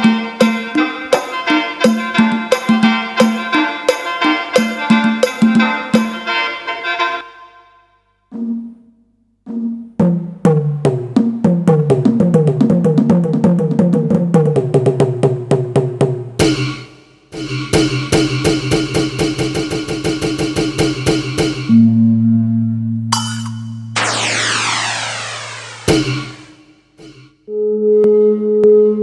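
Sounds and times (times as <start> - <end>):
electronic drum hits: 8.3 - 8.9, 9.5 - 14.6, 16.4 - 21.8, 23.1 - 27.3
held low tone: 21.7 - 26.5
bright percussive roll: 23.1 - 27.2.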